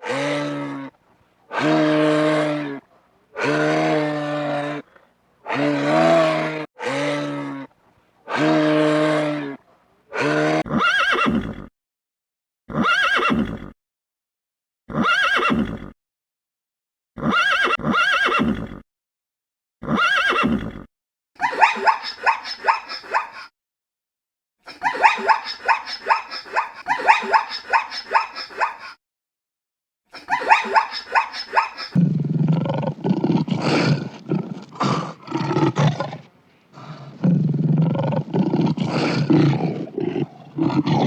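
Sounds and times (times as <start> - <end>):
animal calls: 30.4 - 41.0.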